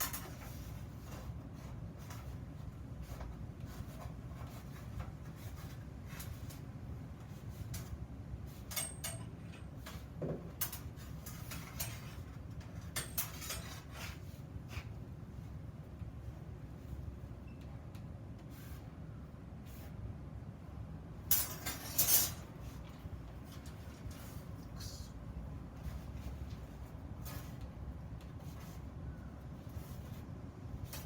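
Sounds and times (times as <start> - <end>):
small iron parts clicking: 8.6 - 10.0.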